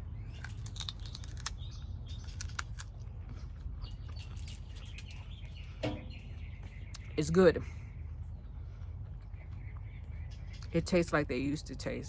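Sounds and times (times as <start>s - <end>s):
low steady background hum: 0.0s - 12.0s
faint bird chirps: 3.8s - 11.0s.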